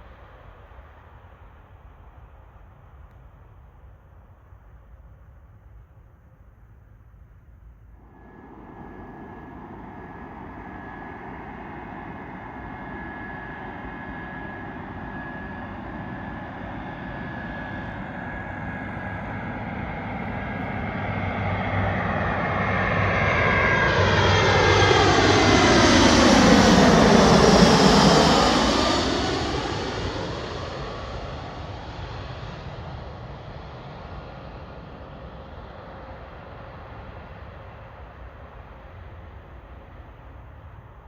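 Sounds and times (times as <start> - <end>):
plane whoosh: 8.0 - 34.9
jet airliner engines whining: 8.0 - 41.0.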